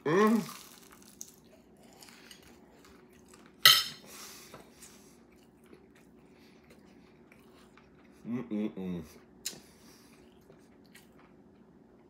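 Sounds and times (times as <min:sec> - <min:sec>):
man chewing food: 0:00.3 - 0:08.3, 0:09.0 - 0:12.0.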